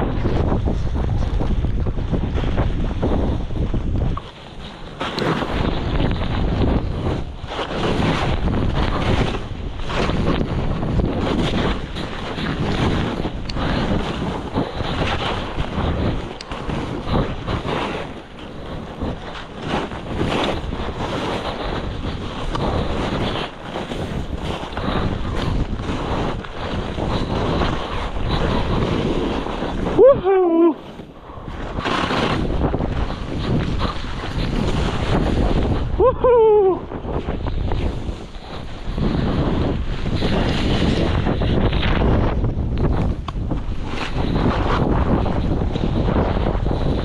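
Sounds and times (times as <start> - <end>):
wind rushing over microphone: 0.0 - 47.0
skier shouting: 29.9 - 30.9, 36.0 - 36.9.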